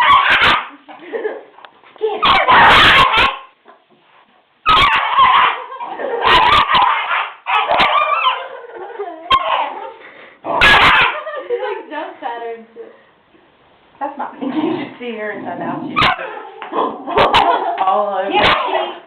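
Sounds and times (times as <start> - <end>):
dogs fighting: 0.0 - 1.1, 2.1 - 4.0, 4.6 - 11.3, 15.8 - 19.0.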